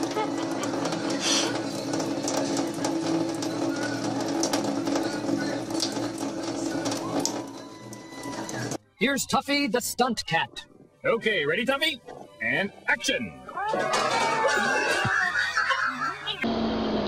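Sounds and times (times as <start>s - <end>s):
tap water running into sink: 0.0s - 8.8s.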